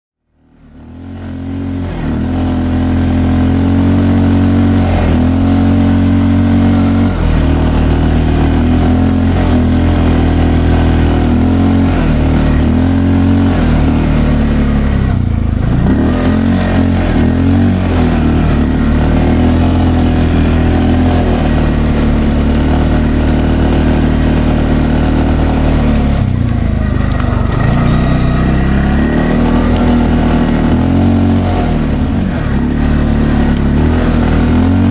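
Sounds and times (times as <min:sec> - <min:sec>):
atv engine revving: 0:00.4 - 0:34.9.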